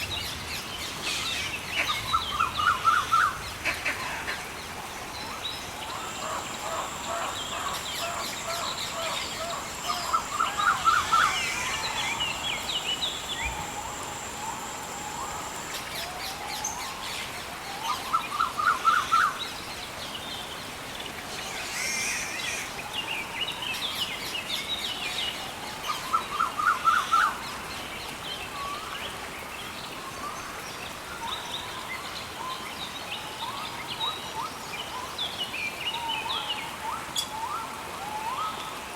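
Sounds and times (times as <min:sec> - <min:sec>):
soft background hiss: 0:00.0 - 0:38.9
birds calling and chirping: 0:01.0 - 0:16.9.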